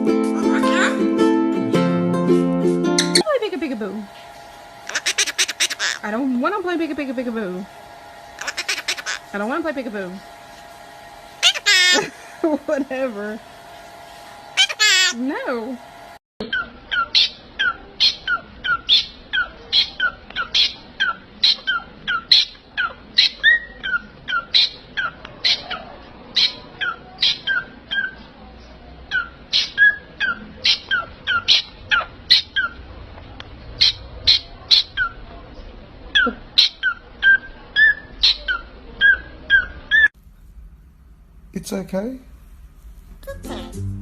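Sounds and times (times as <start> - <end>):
parrot squawking: 0.4 - 1.1, 4.8 - 6.2, 8.4 - 9.4, 11.4 - 12.3, 14.6 - 15.2, 16.4 - 28.3, 29.1 - 32.9, 33.8 - 35.2, 36.1 - 40.1.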